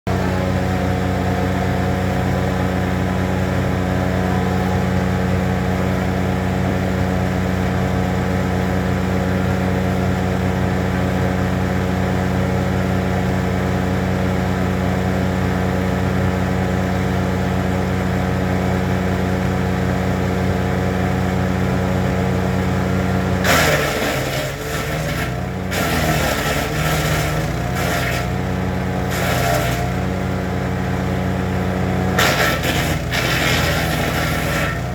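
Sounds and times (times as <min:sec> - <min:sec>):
wood chipper engine running: 0:00.1 - 0:34.9
wood crackling being chipped: 0:23.4 - 0:28.4, 0:29.0 - 0:30.0, 0:32.2 - 0:34.9.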